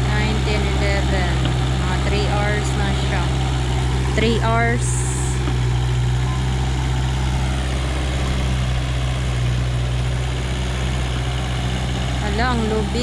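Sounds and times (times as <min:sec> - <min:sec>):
backhoe engine running: 0:00.0 - 0:13.0.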